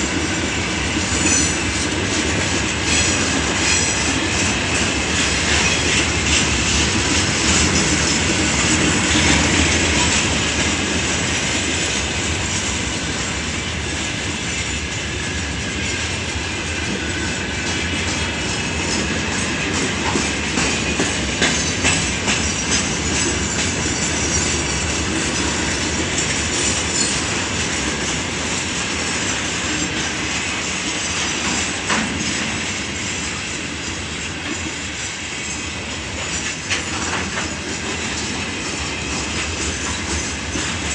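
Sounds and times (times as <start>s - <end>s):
freight train wheels rumbling: 0.0s - 40.9s
wheels clicking over rail joints: 16.2s - 32.6s, 36.1s - 40.9s.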